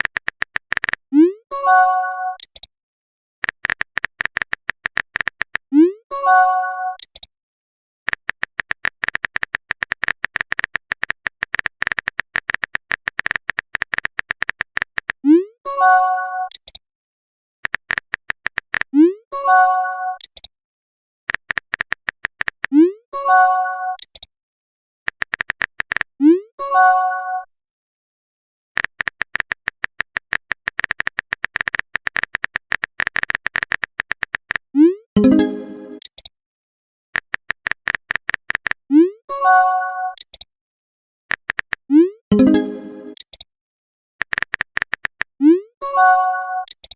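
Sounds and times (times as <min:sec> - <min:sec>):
keyboard typing clicks: 0:00.0 - 0:01.0, 0:02.4 - 0:02.7, 0:03.4 - 0:05.7, 0:07.0 - 0:07.3, 0:08.1 - 0:15.2, 0:16.5 - 0:16.8, 0:17.6 - 0:19.0, 0:20.2 - 0:20.5, 0:21.3 - 0:22.8, 0:24.0 - 0:24.3, 0:25.1 - 0:26.1, 0:28.8 - 0:34.6, 0:35.2 - 0:36.3, 0:37.2 - 0:38.8, 0:40.1 - 0:40.5, 0:41.3 - 0:43.5, 0:44.2 - 0:45.3, 0:46.6 - 0:46.9
chiming message tone: 0:35.2 - 0:36.0, 0:42.3 - 0:43.2.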